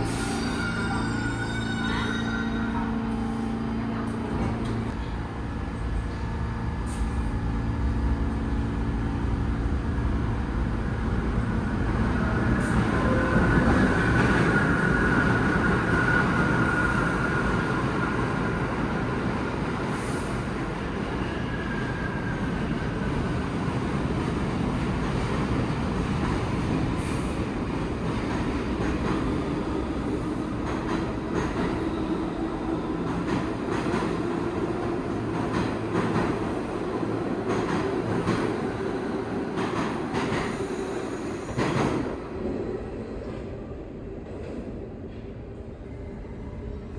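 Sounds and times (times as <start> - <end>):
subway train rumbling: 0.0 - 46.9
high wheel squeal: 0.1 - 2.8.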